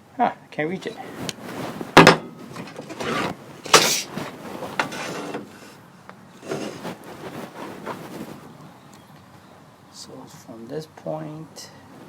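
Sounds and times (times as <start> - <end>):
materials scraping and knocking: 1.1 - 5.8, 6.4 - 8.5.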